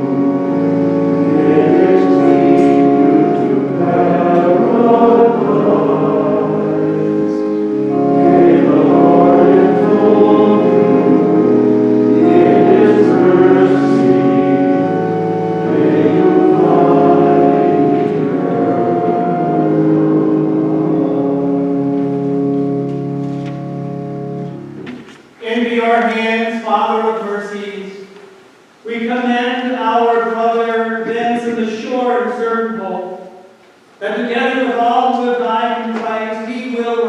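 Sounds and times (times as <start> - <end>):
choir singing a hymn: 0.0 - 23.2.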